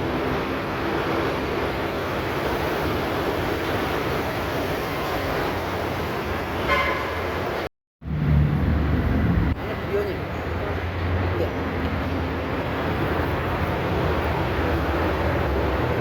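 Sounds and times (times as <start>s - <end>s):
street traffic noise: 0.0s - 16.0s
car horn toot: 6.6s - 7.3s
low rumble: 8.0s - 9.6s.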